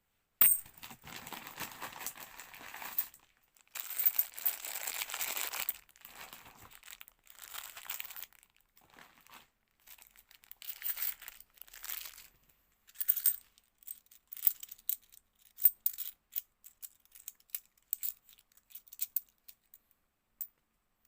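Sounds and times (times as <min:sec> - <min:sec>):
coins clinking: 0:00.4 - 0:00.6
plastic bag crinkling: 0:00.7 - 0:12.3.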